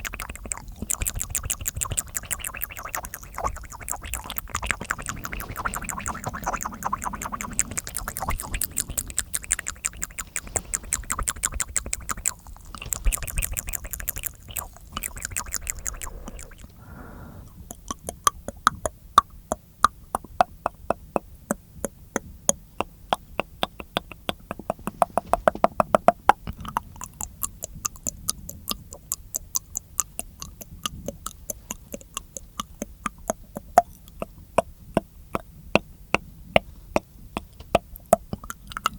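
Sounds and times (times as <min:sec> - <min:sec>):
wet mouth clicking and smacking: 0:00.0 - 0:16.8, 0:17.7 - 0:38.9
sharp mouth clicks: 0:00.0 - 0:38.9.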